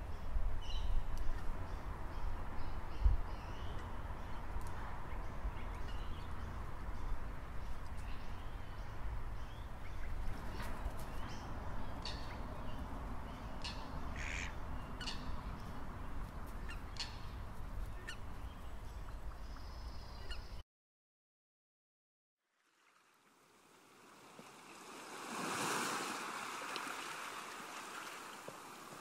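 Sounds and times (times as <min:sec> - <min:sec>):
birds calling and chirping: 0:00.0 - 0:20.6.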